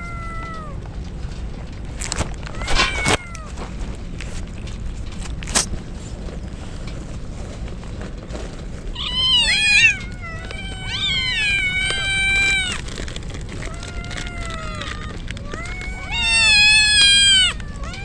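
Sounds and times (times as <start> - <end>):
kittens meowing: 2.5 - 3.7, 8.9 - 18.0.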